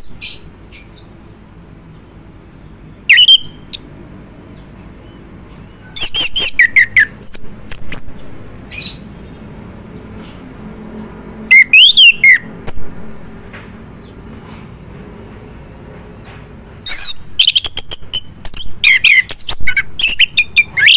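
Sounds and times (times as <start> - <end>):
thrush singing whistled notes: 0.0 - 3.9, 4.5 - 9.4, 11.4 - 13.1, 16.8 - 20.9.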